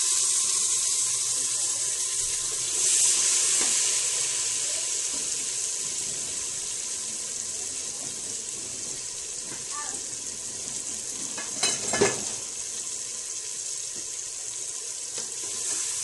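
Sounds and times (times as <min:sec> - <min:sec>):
hot oil sizzling in a pot: 0:00.0 - 0:16.0.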